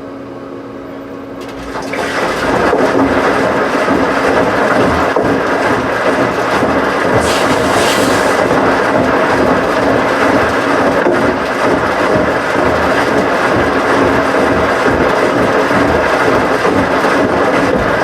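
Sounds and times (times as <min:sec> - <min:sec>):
washing machines rumbling: 0:00.9 - 0:18.0
brief hiss: 0:07.2 - 0:08.4.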